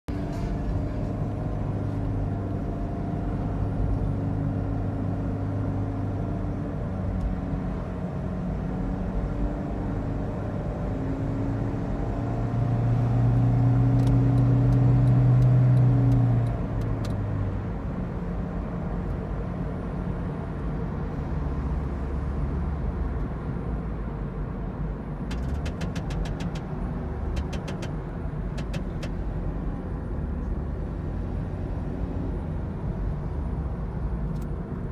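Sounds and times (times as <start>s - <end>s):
car drivetrain droning: 7.0s - 17.3s, 25.3s - 31.2s.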